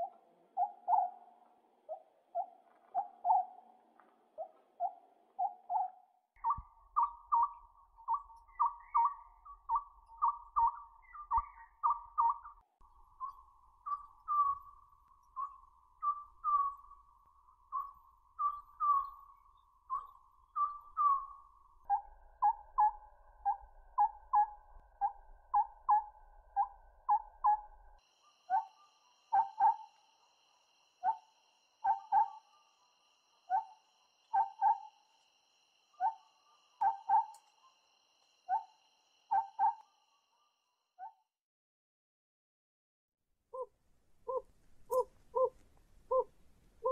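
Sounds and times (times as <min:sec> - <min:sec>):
owl whistled toots: 0:04.4 - 0:12.6, 0:13.2 - 0:16.9, 0:17.7 - 0:27.8, 0:28.5 - 0:30.1, 0:31.0 - 0:32.8, 0:33.4 - 0:35.2, 0:35.9 - 0:37.8, 0:38.5 - 0:40.0, 0:44.3 - 0:46.9.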